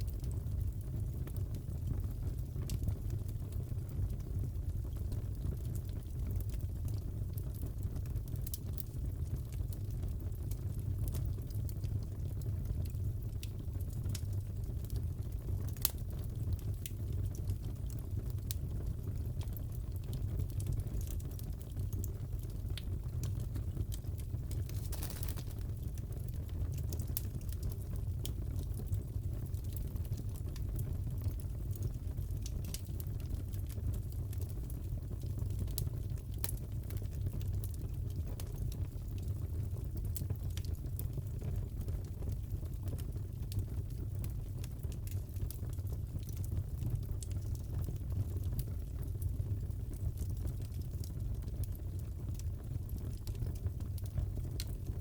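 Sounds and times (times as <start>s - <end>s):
wood fire crackling: 0.0s - 55.0s
burning logs rumbling: 14.9s - 35.3s
sharp pops of fire: 24.5s - 26.0s.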